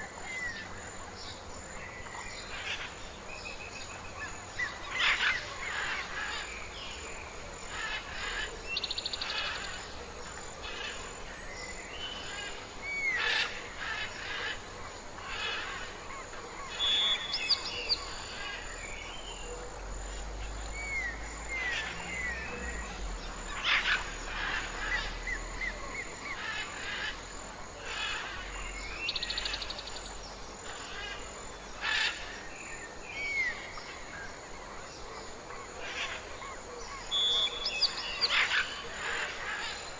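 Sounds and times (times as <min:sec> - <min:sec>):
birds chirping and singing: 0:16.6 - 0:19.6, 0:20.3 - 0:39.9.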